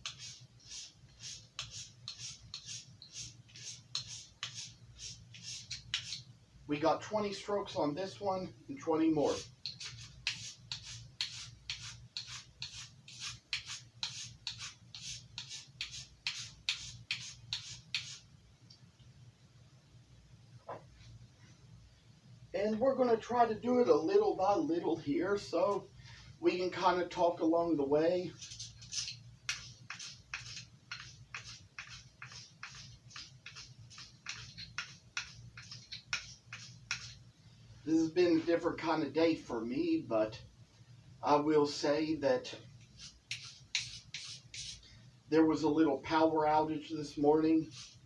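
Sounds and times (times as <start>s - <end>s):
knife scraping on whetstone: 0.0s - 6.2s, 28.4s - 37.2s.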